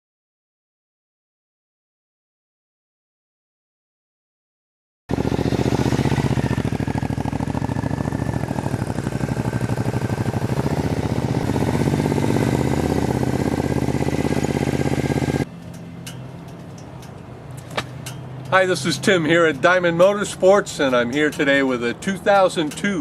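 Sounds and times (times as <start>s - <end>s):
motorcycle engine running: 5.1s - 16.8s.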